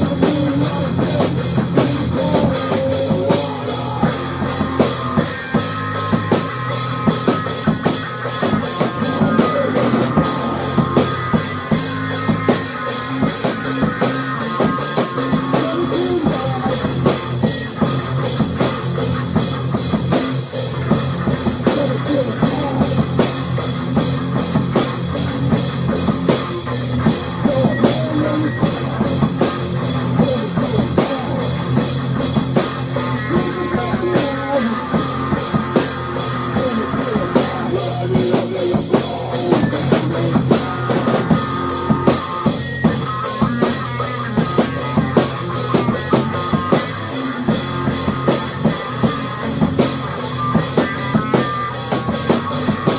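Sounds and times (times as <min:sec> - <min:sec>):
drum kit playing fast beat: 0:00.0 - 0:52.9
rock music: 0:00.0 - 0:52.9.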